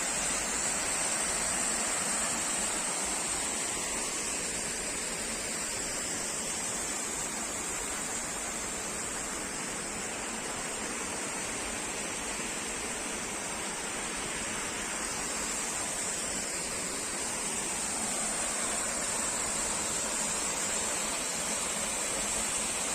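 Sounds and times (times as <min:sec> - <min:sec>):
waterfall rushing: 0:13.7 - 0:22.9.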